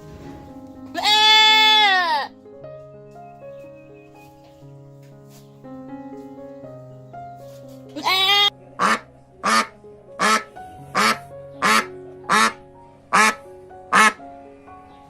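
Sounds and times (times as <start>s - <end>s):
background music: 0.0s - 15.0s
duck quacking: 8.0s - 14.2s.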